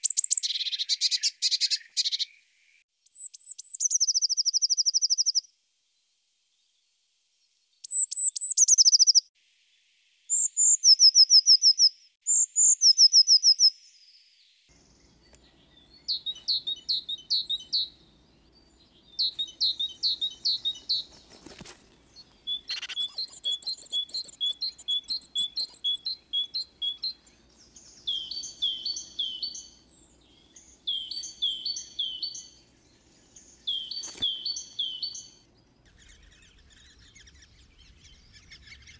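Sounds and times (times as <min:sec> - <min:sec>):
bird trilling song: 0:00.0 - 0:05.5, 0:07.8 - 0:09.3, 0:10.3 - 0:38.9.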